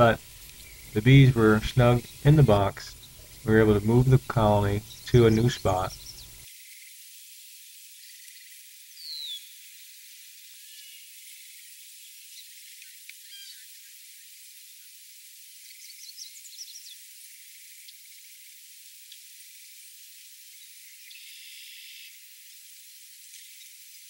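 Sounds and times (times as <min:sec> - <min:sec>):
faint high chirps: 0:00.0 - 0:06.4
steady hiss: 0:00.0 - 0:24.0.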